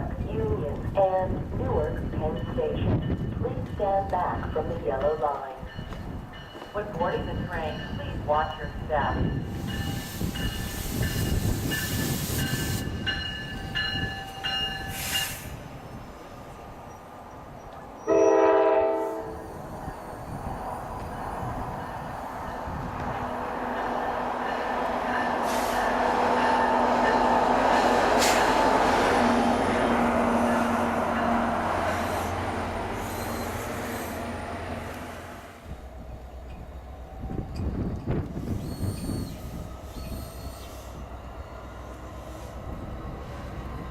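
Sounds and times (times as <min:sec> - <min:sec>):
train rolling on rails: 0:00.0 - 0:43.9
train horn blast: 0:18.1 - 0:19.5
high wheel squeal: 0:33.0 - 0:34.2, 0:38.5 - 0:40.9.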